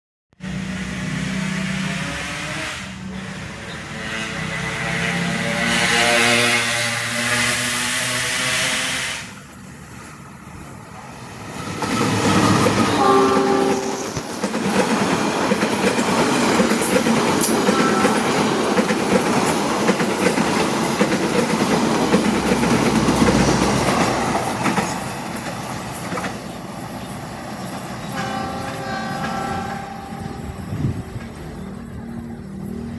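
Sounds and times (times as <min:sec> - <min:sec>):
train horn: 0:00.4 - 0:09.4, 0:12.3 - 0:14.2, 0:17.4 - 0:18.8, 0:28.1 - 0:31.0
train rumble and wheel clatter: 0:00.4 - 0:32.9.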